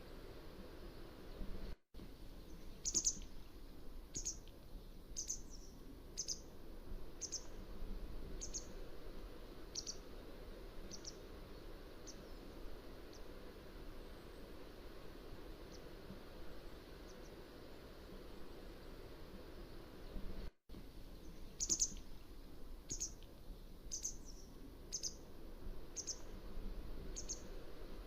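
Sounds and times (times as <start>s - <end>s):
steady background hiss: 0.0s - 28.0s
bird short high chirps: 2.8s - 3.3s, 5.2s - 6.4s, 7.2s - 7.5s, 9.8s - 10.0s, 21.2s - 22.0s, 22.9s - 23.2s, 23.9s - 25.2s, 26.0s - 26.2s.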